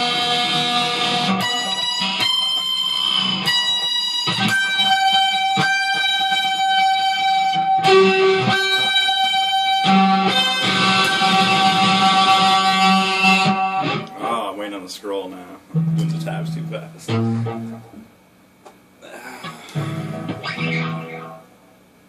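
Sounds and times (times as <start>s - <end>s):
electric guitar single notes: 0.0s - 14.4s, 15.5s - 18.1s, 19.4s - 21.5s.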